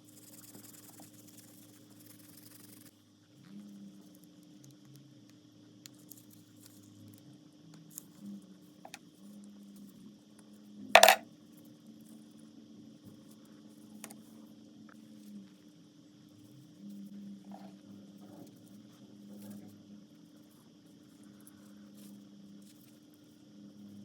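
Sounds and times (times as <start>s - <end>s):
metal part clinking on hard surface: 11.0s - 11.2s.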